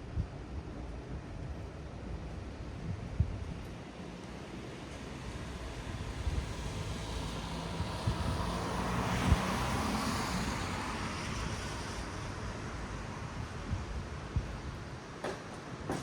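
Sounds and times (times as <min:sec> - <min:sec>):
tyres hissing on wet road: 0:04.1 - 0:14.4.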